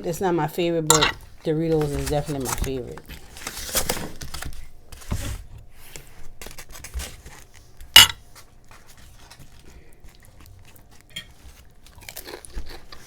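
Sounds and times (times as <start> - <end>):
sharp cutlery clink: 0.9 - 1.2, 8.0 - 8.2
cutlery scraping a plate: 8.0 - 8.2.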